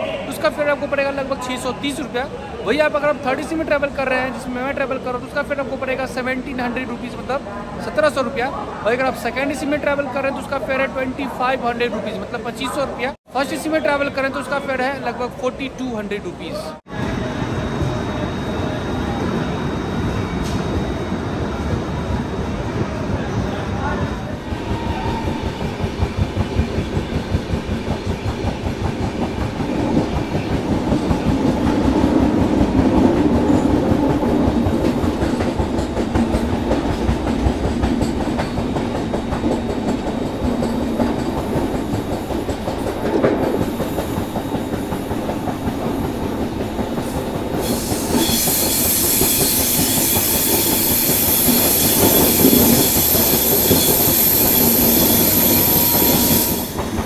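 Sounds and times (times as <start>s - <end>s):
train wheels clattering: 24.4s - 57.0s.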